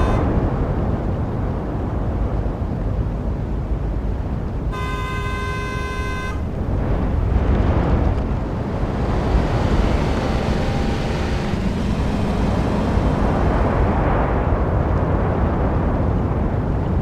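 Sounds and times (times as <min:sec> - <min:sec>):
vehicle horn honking: 0:00.0 - 0:00.3, 0:04.7 - 0:06.6
road traffic rumbling: 0:00.0 - 0:16.9.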